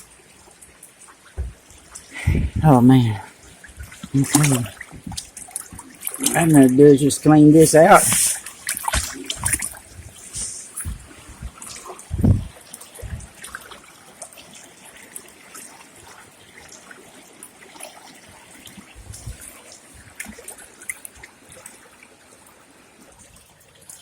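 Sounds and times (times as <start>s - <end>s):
water trickling and dripping: 0.0s - 24.0s
heavy low thump: 1.4s - 1.6s, 10.8s - 13.3s.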